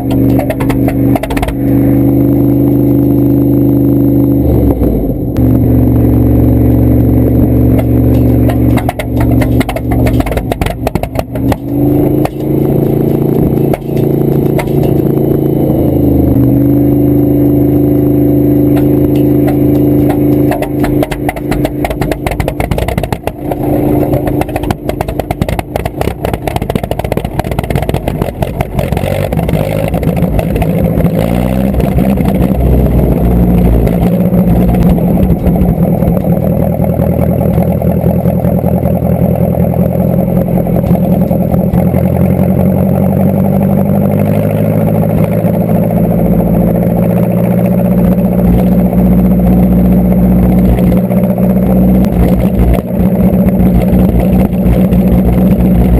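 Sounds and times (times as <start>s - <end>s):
tractor engine revving: 0.0s - 55.9s.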